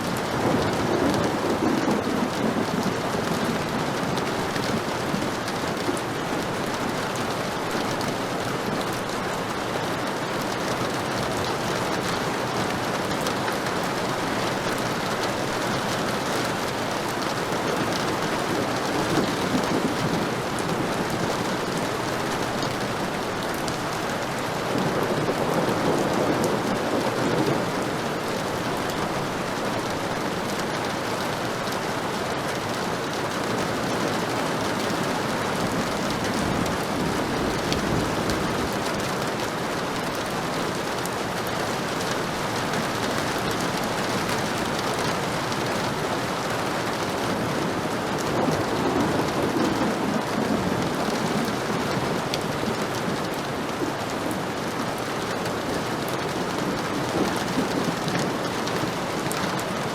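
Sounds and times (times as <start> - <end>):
heavy rain: 0.0 - 59.9
distant thunder rumbles: 0.2 - 6.5, 14.1 - 31.0.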